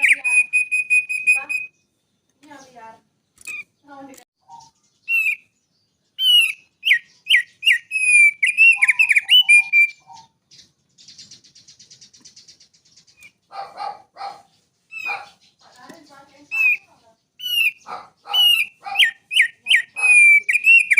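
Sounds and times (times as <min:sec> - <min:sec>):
small songbird singing: 0:00.0 - 0:20.9.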